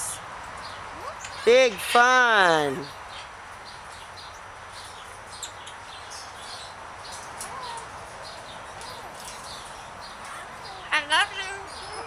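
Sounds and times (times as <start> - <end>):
parrots chirping: 0.7 - 1.6, 7.5 - 12.0.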